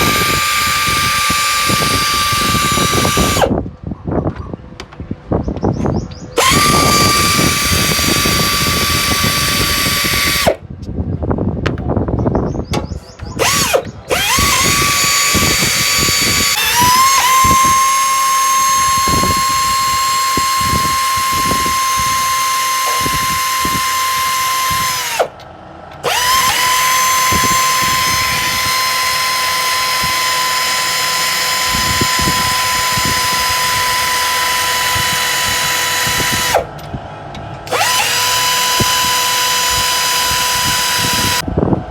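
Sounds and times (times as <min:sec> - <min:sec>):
electric drill whining: 0:00.0 - 0:03.6, 0:06.4 - 0:10.6, 0:13.4 - 0:25.4, 0:26.0 - 0:36.8, 0:37.6 - 0:41.5.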